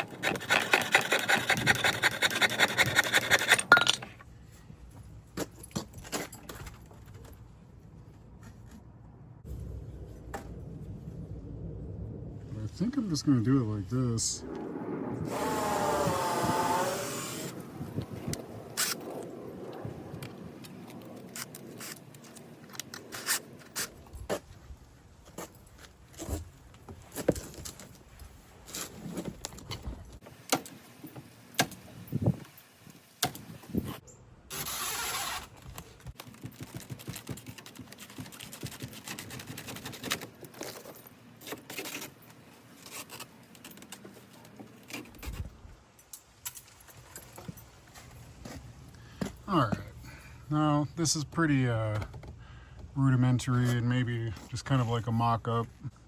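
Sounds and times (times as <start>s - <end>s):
wood and metal parts clattering: 0.0s - 4.3s.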